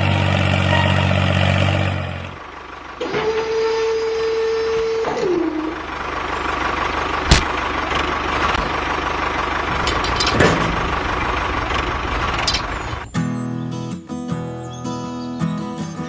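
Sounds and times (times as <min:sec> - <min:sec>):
sharp knock: 0:07.3 - 0:07.6.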